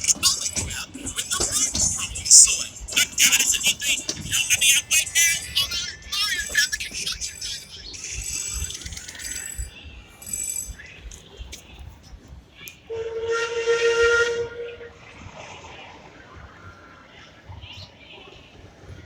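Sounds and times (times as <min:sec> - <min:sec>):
steam locomotive whistle: 0:12.9 - 0:15.0.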